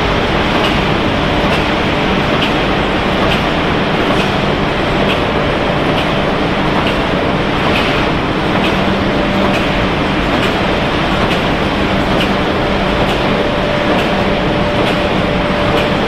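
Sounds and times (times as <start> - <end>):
low hum: 0.0 - 15.8
factory machinery din: 0.0 - 16.0.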